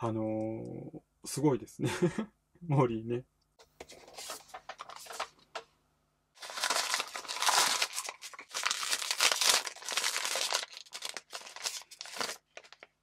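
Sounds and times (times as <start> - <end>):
foil bag crinkling: 4.1 - 5.4, 6.4 - 13.0.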